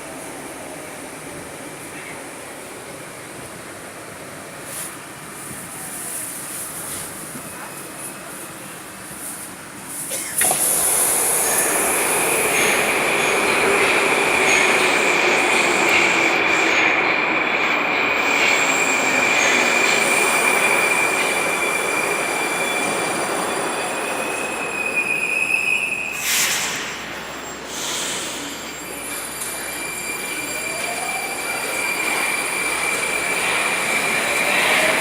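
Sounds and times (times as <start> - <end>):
train rail noise: 0.0 - 35.0
high-pitched wheel squeal: 17.4 - 35.0.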